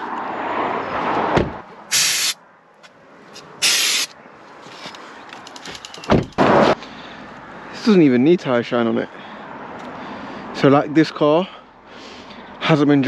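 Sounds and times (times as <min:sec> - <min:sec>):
thump: 0:01.3 - 0:01.6
aerosol spray hisses: 0:01.9 - 0:02.4, 0:03.6 - 0:04.1.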